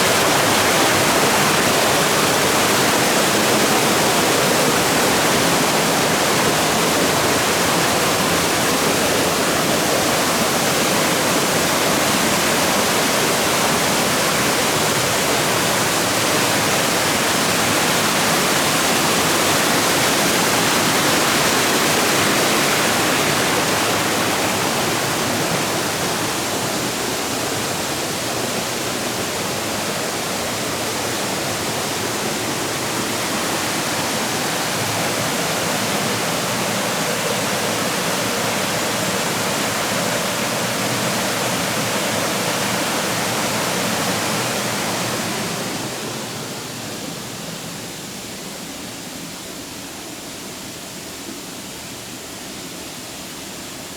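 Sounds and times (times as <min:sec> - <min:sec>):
water rushing over rocks: 0:00.0 - 0:47.9.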